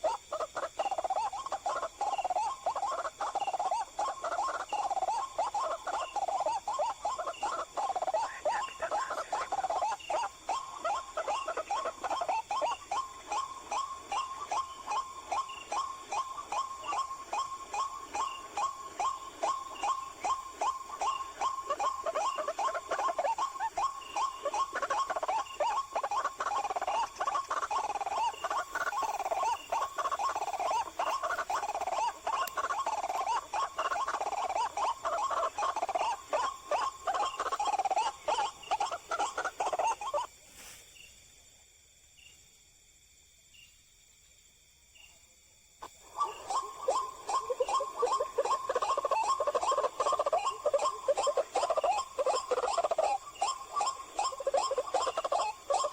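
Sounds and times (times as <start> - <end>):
bird croaking calls: 0.0 - 40.8, 45.8 - 55.9.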